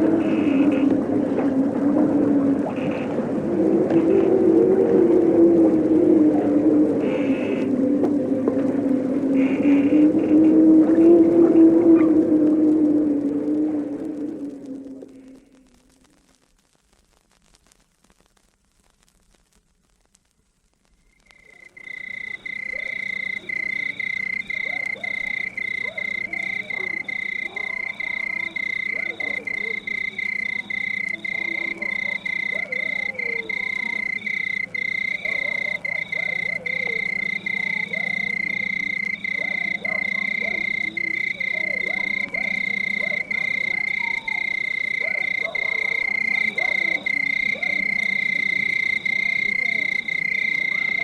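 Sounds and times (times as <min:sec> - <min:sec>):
frogs croaking: 0:00.0 - 0:16.2, 0:21.0 - 0:51.0.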